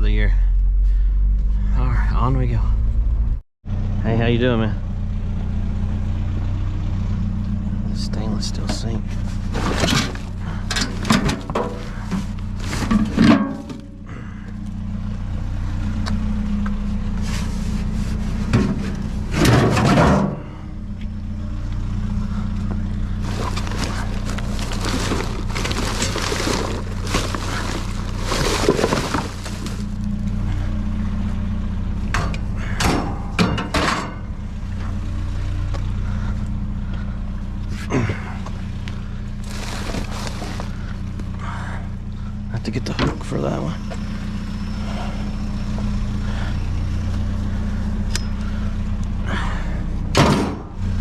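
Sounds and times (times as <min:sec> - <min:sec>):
low engine hum: 0:00.0 - 0:51.0
metal junk clattering in dumpster: 0:08.8 - 0:14.0, 0:18.6 - 0:20.6, 0:23.2 - 0:30.1, 0:32.2 - 0:34.4, 0:39.4 - 0:40.8.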